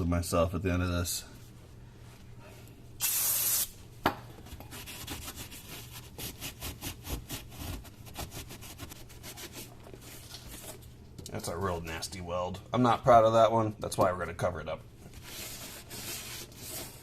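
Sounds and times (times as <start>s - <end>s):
spray hissing: 3.0s - 3.7s.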